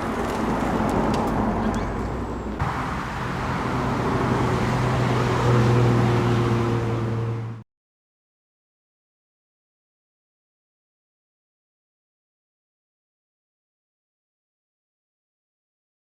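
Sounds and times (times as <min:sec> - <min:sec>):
tyre and road noise: 0:00.0 - 0:07.6.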